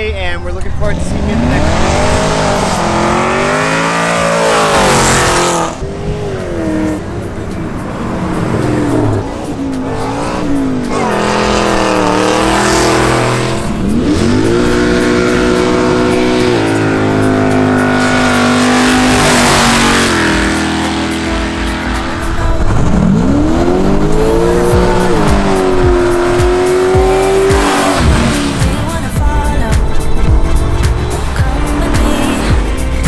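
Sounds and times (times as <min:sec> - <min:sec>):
car engines revving: 0:00.0 - 0:33.0.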